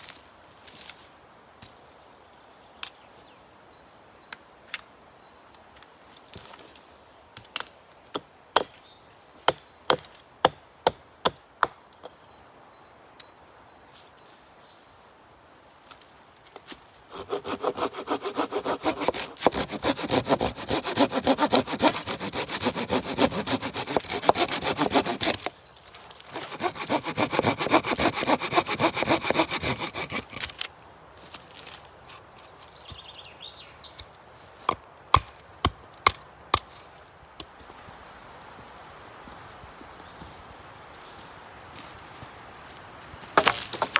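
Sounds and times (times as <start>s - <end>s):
hand saw cutting wood: 17.1s - 25.5s, 26.3s - 30.6s
sharp wooden knocks: 17.4s - 25.4s.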